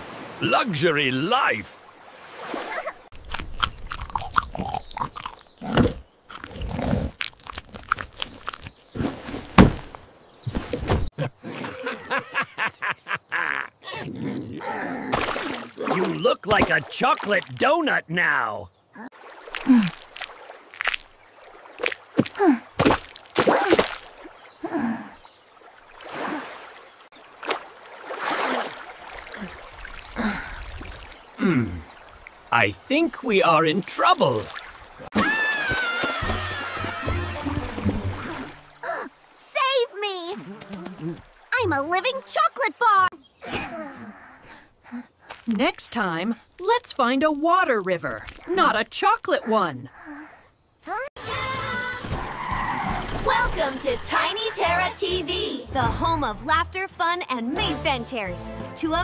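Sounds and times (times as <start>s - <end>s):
cartoon water sloshing and gurgling: 1.5s - 9.9s, 14.0s - 18.0s, 19.0s - 44.0s, 51.2s - 56.3s
low grunt-like vocal noises: 13.8s - 15.1s, 31.4s - 31.9s.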